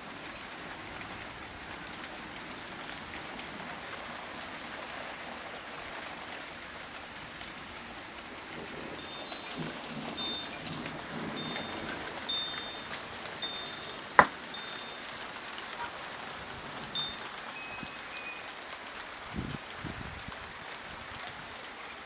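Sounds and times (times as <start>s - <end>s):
steady rain: 0.0s - 22.0s
low thunder rumbling: 8.3s - 15.0s.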